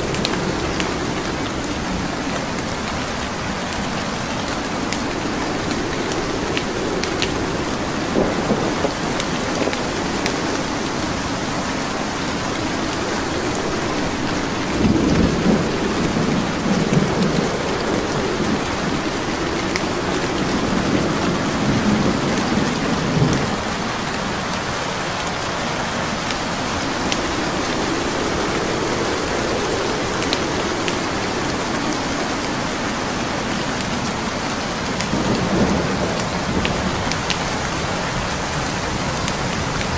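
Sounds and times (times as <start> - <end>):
rolling thunder: 0.0 - 39.9
steady rain: 0.0 - 39.9
wood fire crackling: 0.0 - 39.9.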